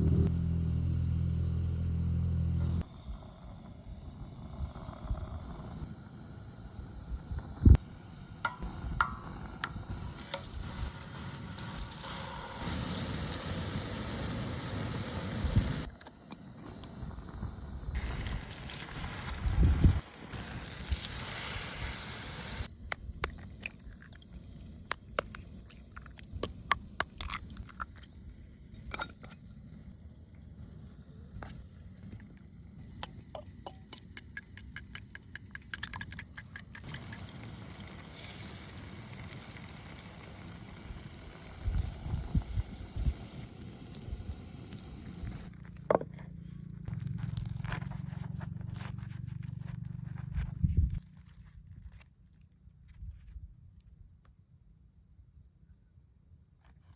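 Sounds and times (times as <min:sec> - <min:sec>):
food sizzling in a pan: 0:08.4 - 0:15.9, 0:18.0 - 0:22.7, 0:36.8 - 0:45.5
sharp crackles and clicks: 0:46.6 - 0:52.5.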